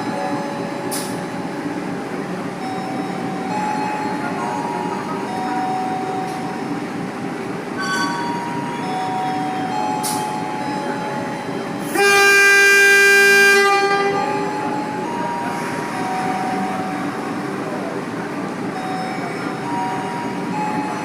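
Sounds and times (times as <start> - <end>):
train rumbling: 0.0 - 21.0
locomotive horn blast: 11.8 - 14.4.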